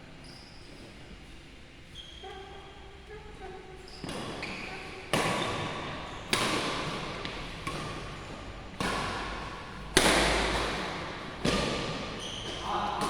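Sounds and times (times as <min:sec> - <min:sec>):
rackets hitting shuttlecock: 0:04.0 - 0:13.0.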